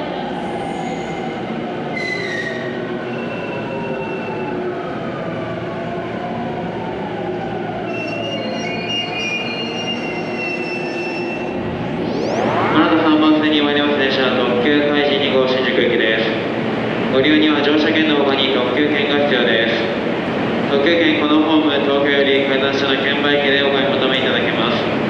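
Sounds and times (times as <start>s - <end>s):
whining tones: 11.5s - 14.9s.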